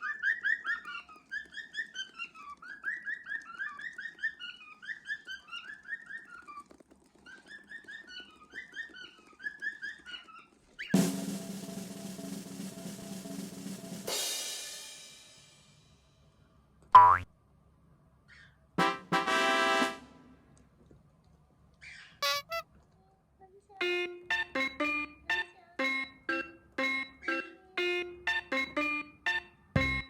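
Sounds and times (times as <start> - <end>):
cockatiels chirping: 0.0 - 6.6, 7.5 - 10.9
cymbal crash: 11.0 - 15.8
drum roll: 11.0 - 15.8, 18.8 - 20.0, 28.2 - 30.0.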